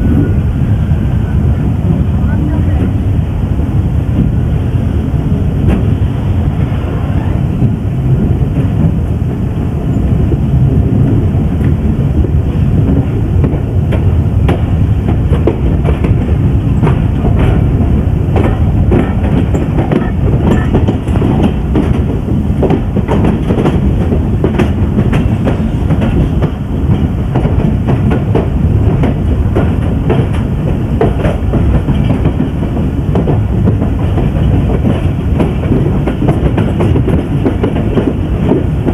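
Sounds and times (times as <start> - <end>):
train rumbling: 0.0 - 38.9
wheels clicking over rail joints: 11.1 - 38.9.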